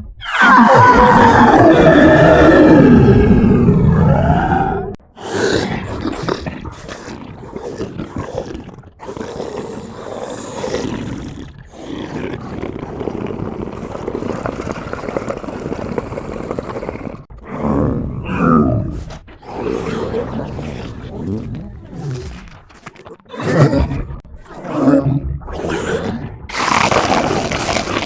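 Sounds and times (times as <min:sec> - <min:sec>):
throaty creature cries: 0:00.0 - 0:14.9, 0:16.8 - 0:28.0
rough noisy creature breaths: 0:01.0 - 0:18.2.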